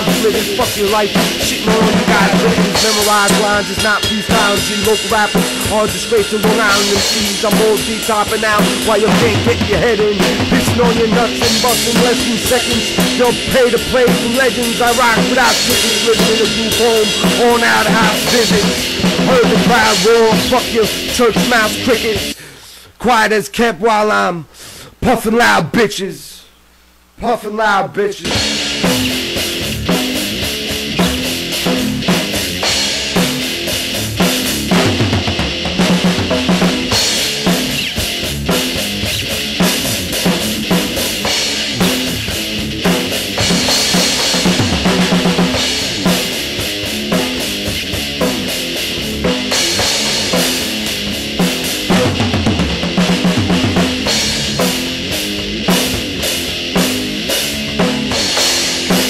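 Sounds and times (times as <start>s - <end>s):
repeating pitched backing notes: 0.0s - 21.9s
drum kit playing driving beat: 0.0s - 22.4s, 28.2s - 59.0s.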